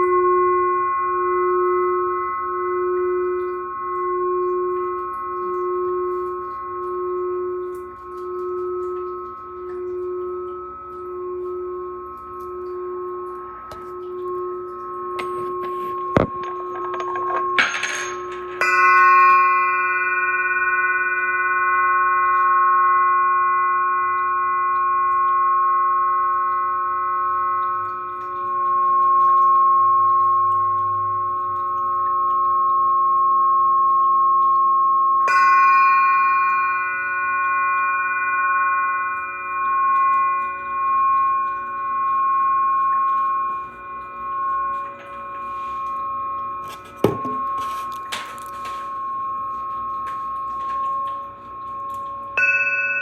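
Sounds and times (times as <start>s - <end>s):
glass singing bowls ringing: 0.0s - 53.0s
singing bowl struck: 0.0s - 53.0s.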